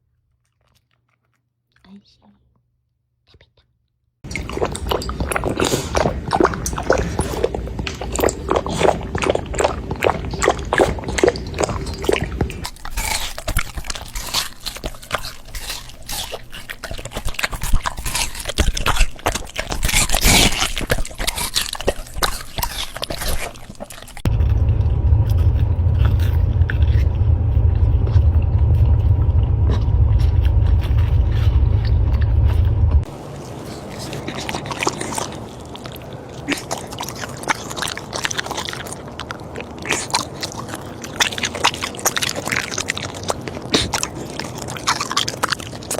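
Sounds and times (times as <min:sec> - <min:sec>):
dog chewing and licking: 0:00.0 - 0:02.0, 0:04.2 - 0:45.9
steady low rumble: 0:04.3 - 0:16.6, 0:23.8 - 0:36.3.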